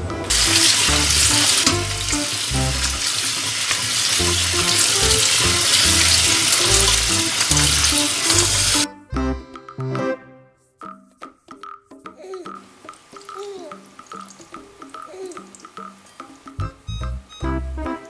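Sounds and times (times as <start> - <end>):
light background music: 0.0 - 18.0
tap water running into colander: 0.2 - 8.9, 12.9 - 14.6.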